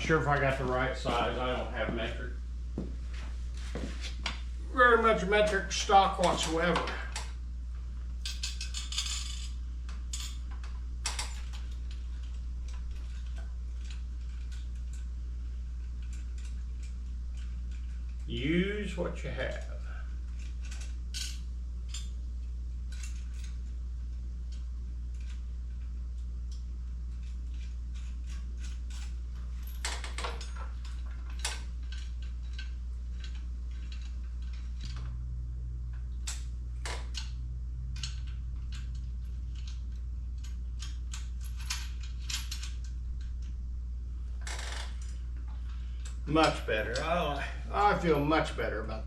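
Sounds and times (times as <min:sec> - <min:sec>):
steady low hum: 0:00.0 - 0:49.0
metallic clicks of bolts and washers: 0:29.7 - 0:35.0, 0:35.9 - 0:43.6.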